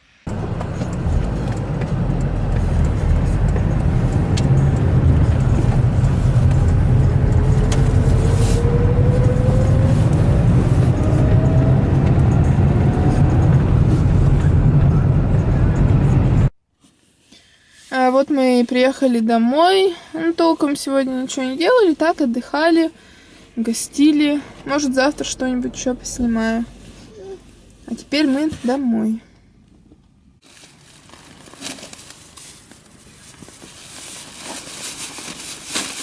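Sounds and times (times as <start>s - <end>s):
car road and engine noise: 0.0s - 16.6s, 20.3s - 36.0s
faint rising whine: 0.3s - 16.5s.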